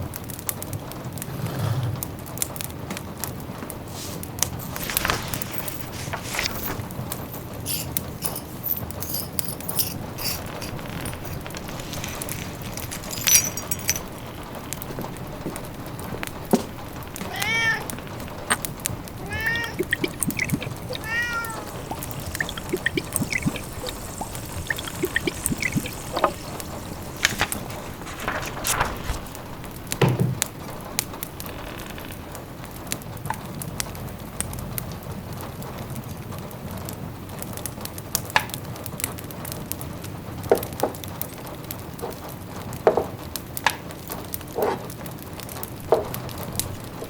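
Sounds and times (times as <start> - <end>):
rain pattering: 2.3 - 47.0
wood fire crackling: 3.3 - 33.0, 43.6 - 47.0
light high-pitched clinks: 6.4 - 14.4
cat meowing: 16.9 - 26.1.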